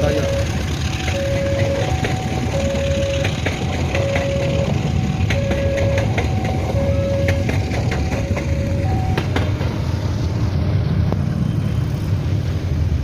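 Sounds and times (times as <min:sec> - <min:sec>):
level crossing two-tone warning signal: 0:00.0 - 0:09.4
heavy engine rumble: 0:00.0 - 0:13.0.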